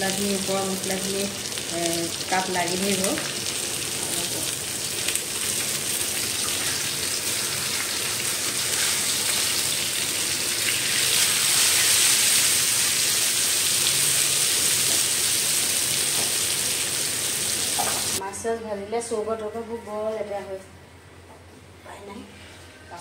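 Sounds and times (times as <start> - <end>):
fish sizzling in oil: 0.0 - 18.2.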